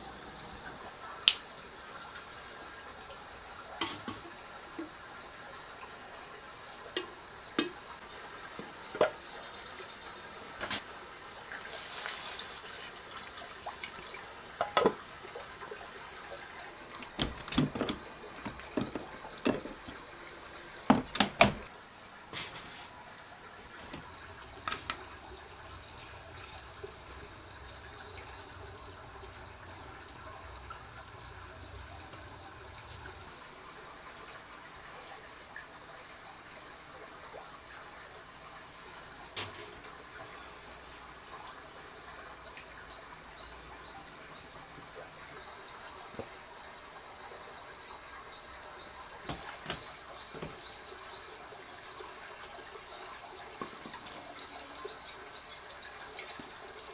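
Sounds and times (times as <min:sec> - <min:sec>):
objects being handled and set down: 0:03.8 - 0:04.3, 0:10.6 - 0:10.8, 0:16.9 - 0:21.7, 0:22.3 - 0:23.0, 0:23.6 - 0:27.4, 0:39.4 - 0:39.9, 0:49.2 - 0:50.6
short hiss: 0:22.3 - 0:23.0.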